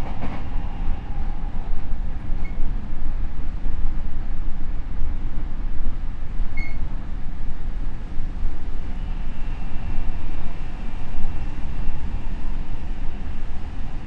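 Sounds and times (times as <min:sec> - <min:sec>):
electric train rumbling: 0:00.0 - 0:14.0
brief high squeak: 0:06.6 - 0:06.8.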